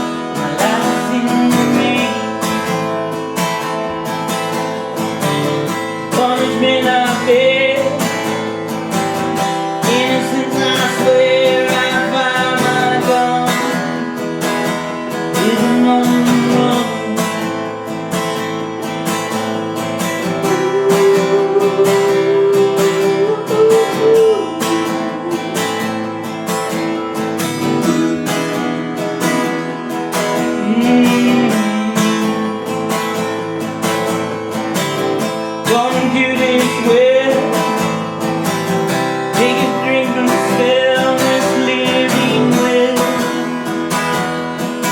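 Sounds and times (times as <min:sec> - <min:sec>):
acoustic guitar strumming: 0:00.0 - 0:44.9
man singing: 0:00.0 - 0:44.9.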